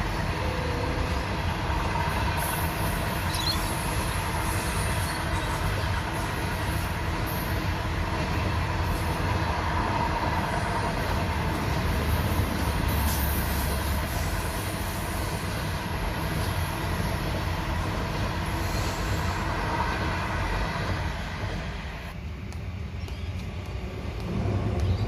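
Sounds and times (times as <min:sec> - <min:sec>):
train rumbling past: 0:00.0 - 0:25.0.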